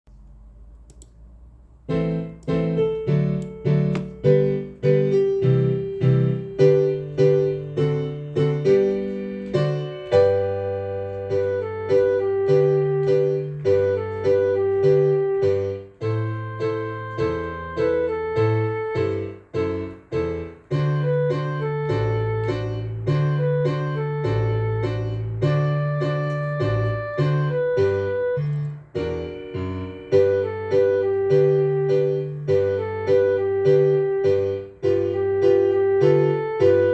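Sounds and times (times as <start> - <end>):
piano playing bouncy foxtrot: 1.8 - 36.9.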